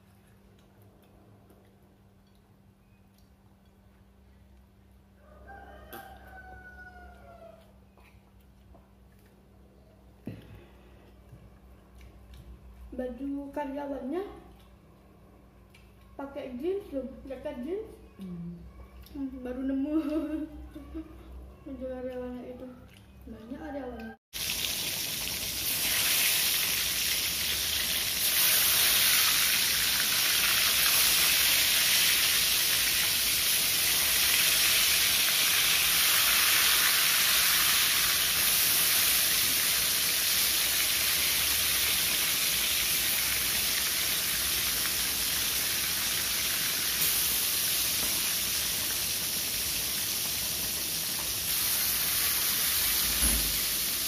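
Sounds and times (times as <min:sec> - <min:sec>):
food frying in hot oil: 0:24.4 - 0:54.0.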